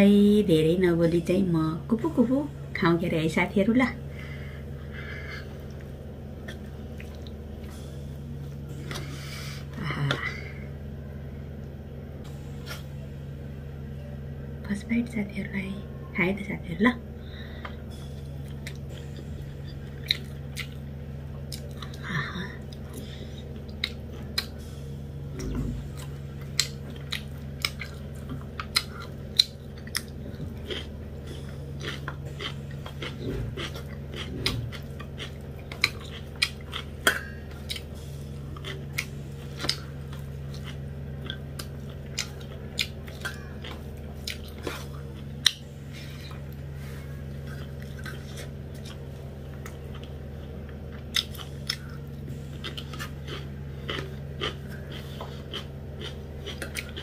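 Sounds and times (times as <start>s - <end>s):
steady low hum: 0.0s - 57.0s
chewing and lip-smacking: 5.4s - 7.8s, 17.6s - 22.0s, 22.6s - 24.6s, 25.4s - 46.7s, 47.3s - 57.0s.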